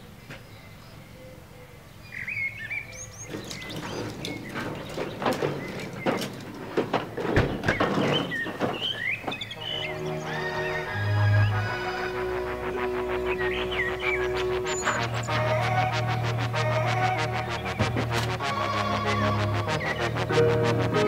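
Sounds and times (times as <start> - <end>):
small birds chirping: 0.0 - 12.0, 13.0 - 15.7
sharp clicks and knocks: 3.3 - 9.5.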